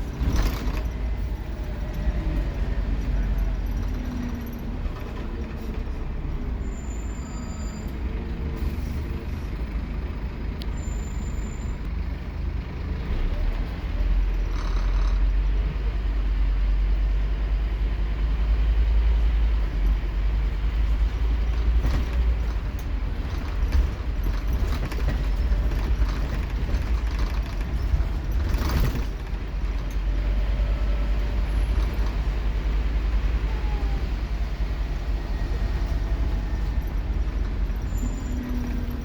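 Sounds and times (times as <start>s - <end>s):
rattles: 0.0s - 6.1s, 21.2s - 30.4s
bus diesel engine rumbling: 0.0s - 39.0s.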